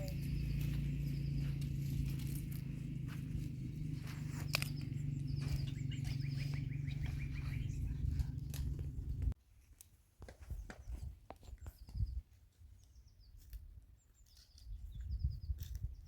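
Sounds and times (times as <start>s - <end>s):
birds chirping: 0.0s - 9.4s
steady low hum: 0.0s - 9.4s.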